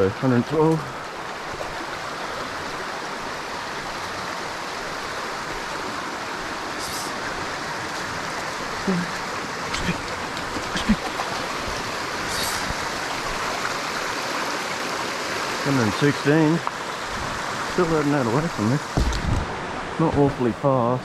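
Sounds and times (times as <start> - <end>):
soft knocks: 18.9 - 19.5.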